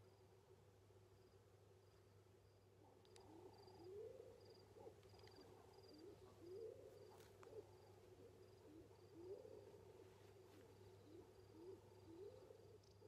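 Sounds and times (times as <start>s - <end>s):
low cooing bird calls: 3.2s - 9.9s, 10.8s - 13.0s.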